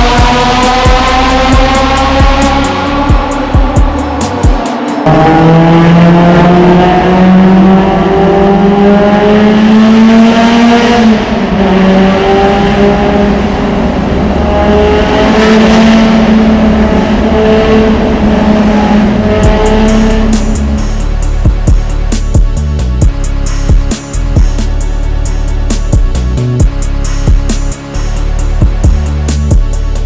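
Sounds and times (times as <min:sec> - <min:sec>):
car engine revving high: 0:00.0 - 0:30.0.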